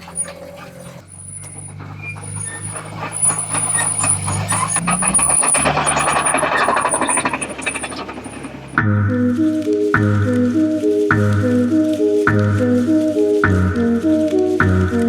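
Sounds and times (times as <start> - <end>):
rattling and clanking: 0.0 - 9.0
heavy diesel engine working: 0.0 - 15.0.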